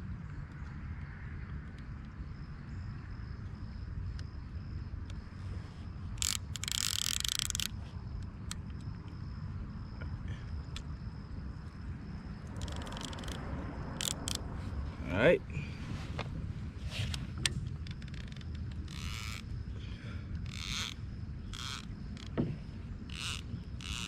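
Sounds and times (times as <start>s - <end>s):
light clicks: 6.2s - 9.2s, 12.5s - 13.4s, 14.0s - 14.4s.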